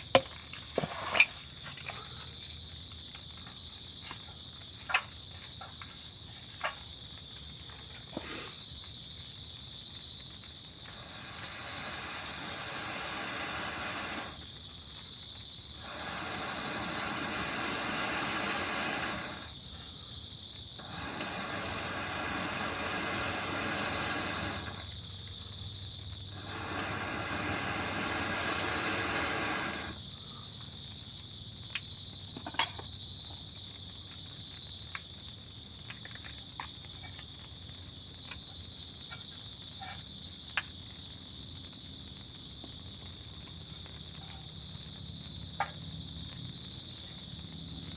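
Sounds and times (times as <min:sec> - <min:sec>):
crickets chirping: 0:00.0 - 0:47.9
rushing noise: 0:10.9 - 0:14.4, 0:15.7 - 0:19.6, 0:20.8 - 0:24.9, 0:26.3 - 0:30.0.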